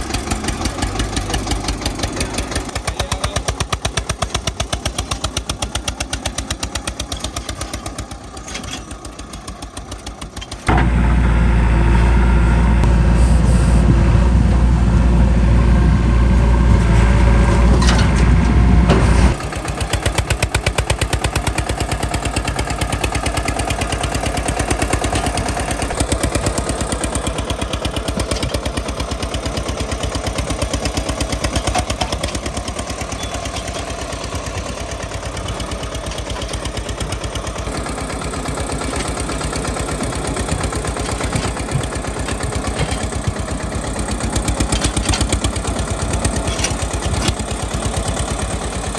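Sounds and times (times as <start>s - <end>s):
diesel tractor engine chugging: 0.0s - 48.9s
heavy low rumble: 10.7s - 19.4s.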